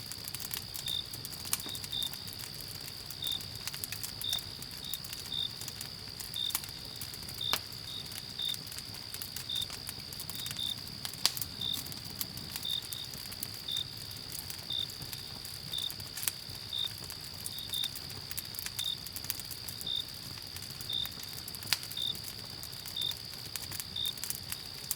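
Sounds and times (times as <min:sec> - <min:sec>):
campfire crackling: 0:00.0 - 0:24.9
cricket chirping: 0:00.1 - 0:24.9
cricket trilling: 0:00.1 - 0:24.9.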